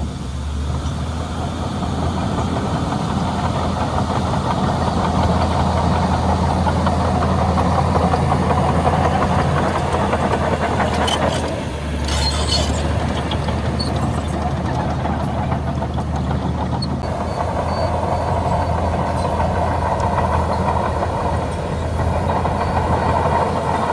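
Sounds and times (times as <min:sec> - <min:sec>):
bulldozer diesel engine running: 0:00.0 - 0:23.9
metallic clanking and rattling: 0:09.2 - 0:17.1.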